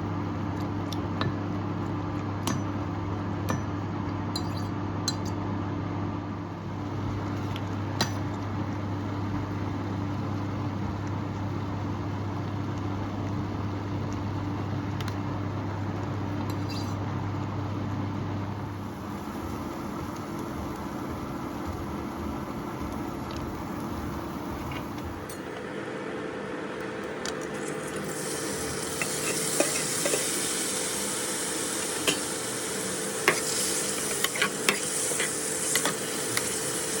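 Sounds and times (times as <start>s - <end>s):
steady motor hum: 5.0s - 37.0s
hiss: 28.0s - 37.0s.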